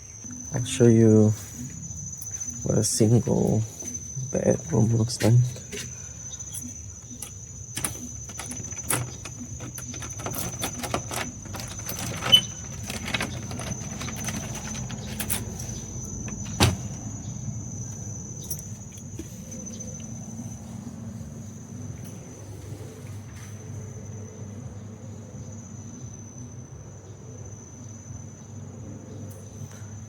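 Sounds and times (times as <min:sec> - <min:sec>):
insects trilling: 0:00.0 - 0:30.0
handling clicks and knocks: 0:05.1 - 0:19.3
low handling rumble: 0:07.0 - 0:21.2.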